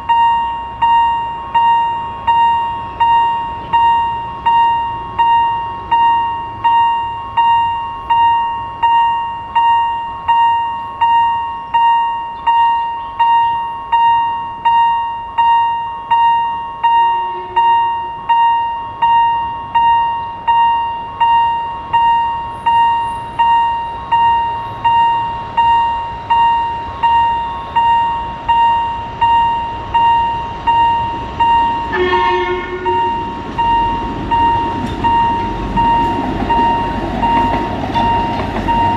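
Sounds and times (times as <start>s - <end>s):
level crossing bell ringing: 0.0s - 38.9s
train rumble: 0.0s - 38.9s
train horn: 17.1s - 18.2s, 31.8s - 33.4s.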